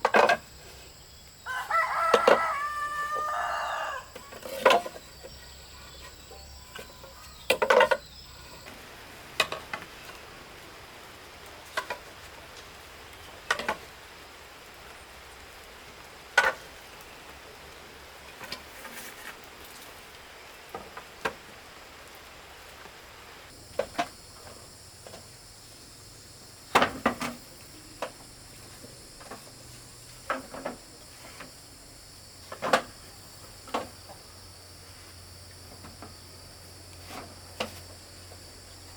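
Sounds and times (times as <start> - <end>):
high cricket drone: 0.0 - 15.5, 23.3 - 38.9
insects: 0.0 - 38.9.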